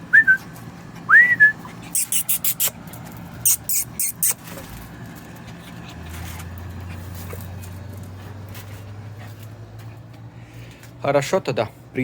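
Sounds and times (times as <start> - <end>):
dog sniffing: 1.6 - 2.8, 3.4 - 4.7.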